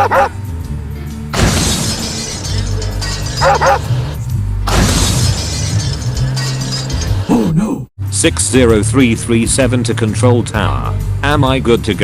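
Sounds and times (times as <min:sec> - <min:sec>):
dog barking: 0:00.0 - 0:00.4, 0:03.4 - 0:03.9
background music: 0:00.0 - 0:12.0
loud crashing hissing noises: 0:01.4 - 0:02.3.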